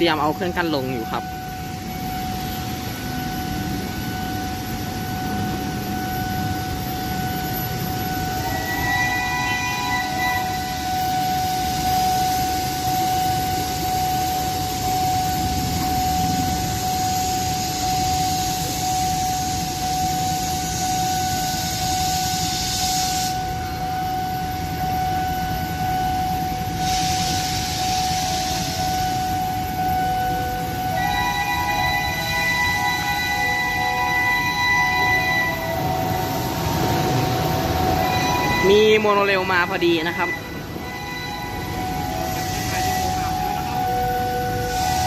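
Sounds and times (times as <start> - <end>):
level-crossing warning alarm: 0.0 - 45.0
rumble of road and rail traffic: 0.0 - 45.0
hiss: 16.4 - 23.5, 26.7 - 29.4, 44.6 - 45.0.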